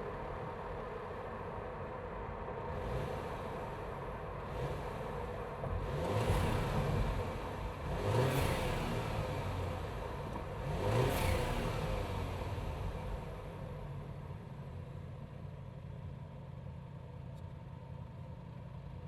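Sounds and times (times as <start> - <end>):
car engine revving: 4.4 - 13.6.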